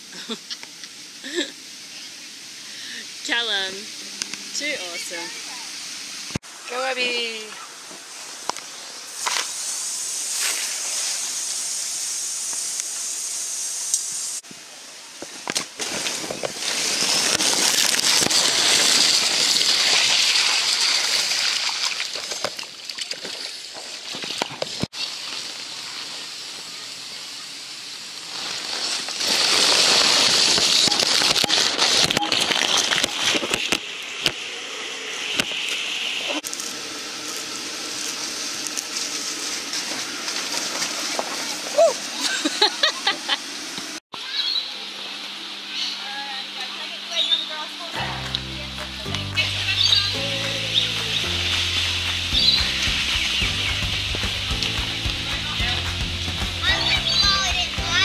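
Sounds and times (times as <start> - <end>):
water splashing on waterslide: 15.6 - 34.4, 37.9 - 43.1, 48.2 - 58.0.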